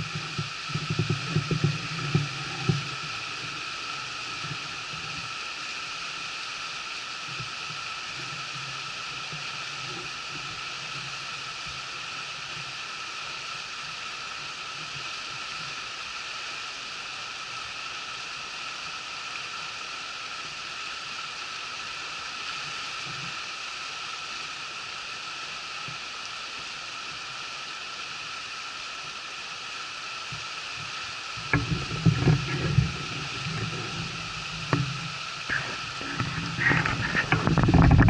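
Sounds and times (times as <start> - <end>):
river water flowing: 0.0 - 38.0.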